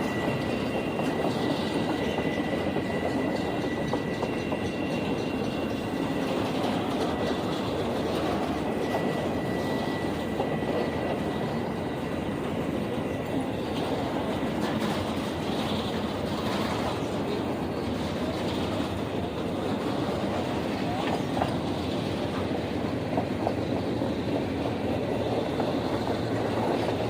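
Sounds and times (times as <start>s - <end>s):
train wheels on rails: 0.0s - 27.0s.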